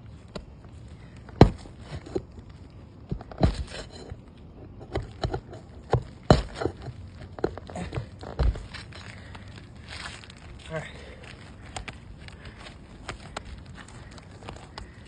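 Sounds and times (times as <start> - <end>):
hand tools knocking on roof shingles: 1.3 - 2.2, 3.1 - 3.9, 4.8 - 8.8.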